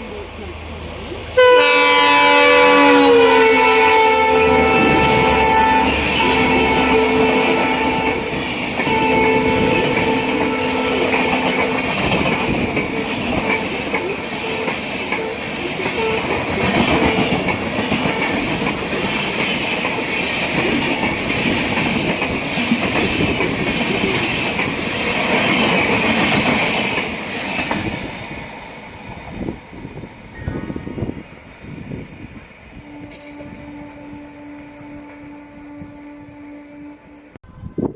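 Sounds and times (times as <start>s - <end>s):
train passing with clattering wheels: 0.0s - 36.8s
locomotive horn: 1.3s - 12.2s, 32.8s - 37.9s.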